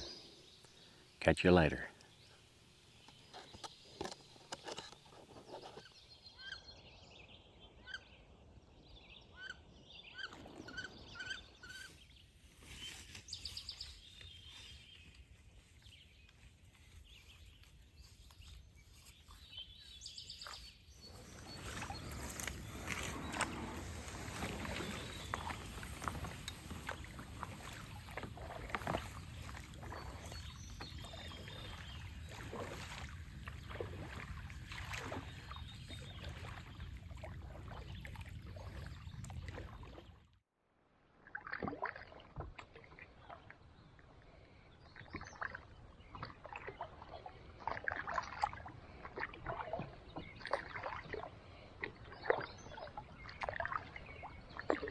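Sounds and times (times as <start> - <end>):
paddle splashing in water: 20.1 - 40.2, 41.2 - 43.6, 44.9 - 54.9
water dripping: 21.6 - 39.9.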